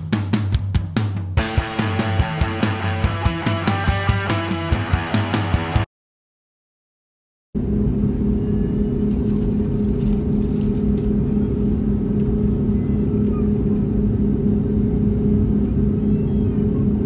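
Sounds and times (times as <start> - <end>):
engine running steadily: 7.6 - 17.0.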